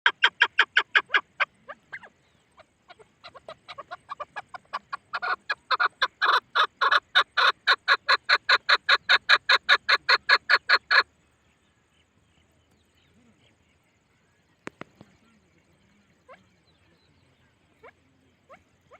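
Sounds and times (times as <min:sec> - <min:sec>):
partridge calling rapid notes: 0:00.0 - 0:11.1.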